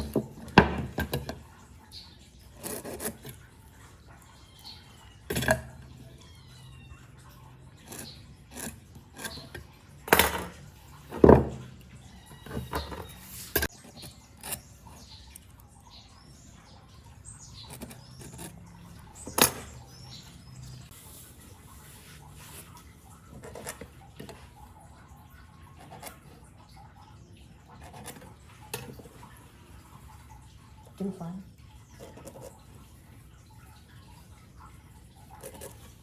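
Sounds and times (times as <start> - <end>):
faint high bird chirps: 6.0 - 8.3.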